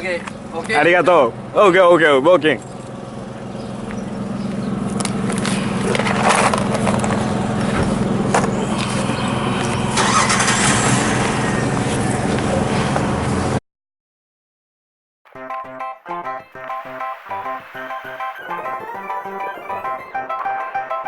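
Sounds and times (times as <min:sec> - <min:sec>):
vehicle engine running: 0:02.6 - 0:13.6.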